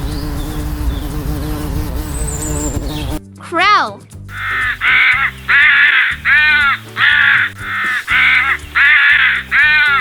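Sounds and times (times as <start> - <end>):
background music: 2.5 - 10.0
crow cawing: 4.3 - 10.0.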